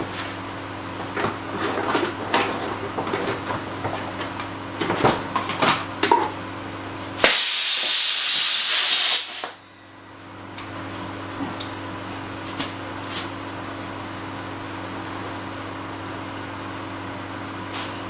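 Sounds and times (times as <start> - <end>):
loud hiss of escaping air: 7.2 - 9.6.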